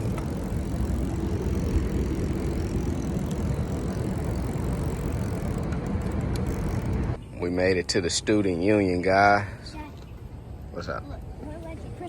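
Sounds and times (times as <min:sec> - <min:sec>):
bicycle tyre noise: 0:00.0 - 0:07.2.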